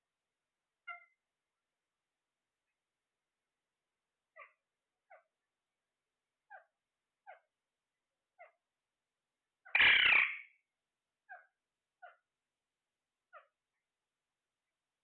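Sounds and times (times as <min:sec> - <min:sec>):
parrot chirping: 0:00.8 - 0:01.2, 0:04.3 - 0:05.3, 0:06.4 - 0:07.5, 0:08.4 - 0:08.6, 0:09.6 - 0:10.6, 0:11.2 - 0:12.3, 0:13.3 - 0:13.6
parrot squawk: 0:00.8 - 0:01.2, 0:09.6 - 0:10.5.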